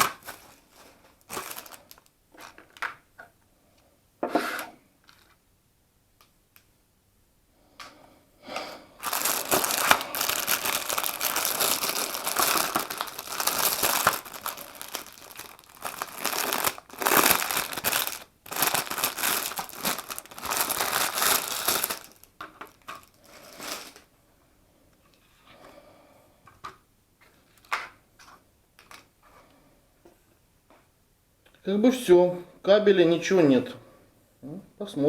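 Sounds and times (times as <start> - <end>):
packaging crinkling: 0.0 - 3.0, 9.0 - 24.1.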